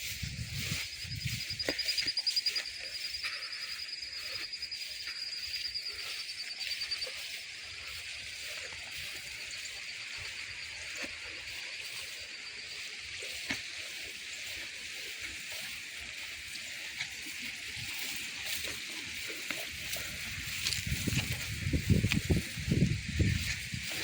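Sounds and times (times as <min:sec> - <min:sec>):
wind rumble on microphone: 0:00.0 - 0:01.8, 0:19.7 - 0:24.0.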